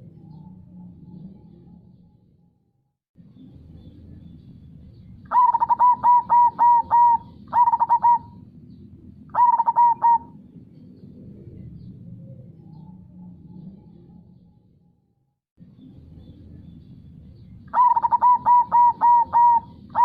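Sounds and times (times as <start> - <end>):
dove cooing: 5.3 - 8.4, 9.3 - 10.4, 17.7 - 20.0.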